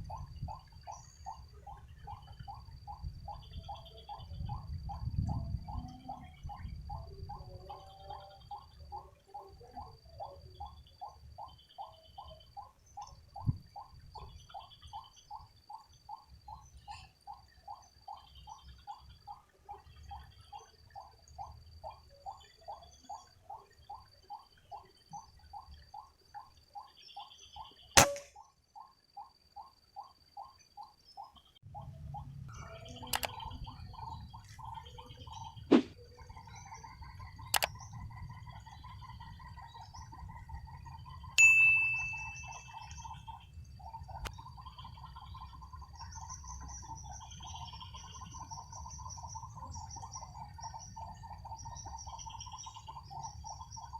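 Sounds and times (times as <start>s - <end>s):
air rifle shot: 28.0s - 28.3s, 35.7s - 35.9s
loud metallic ring: 28.0s - 28.3s
sharp cracks: 28.0s - 28.4s.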